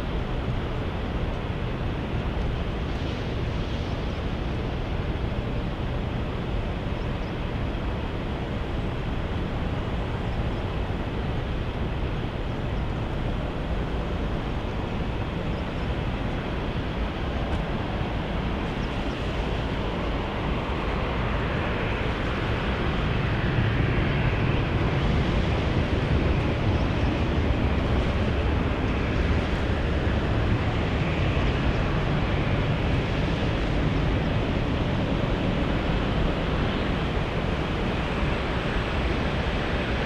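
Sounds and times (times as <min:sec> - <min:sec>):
jet engine roar: 0:00.0 - 0:40.0.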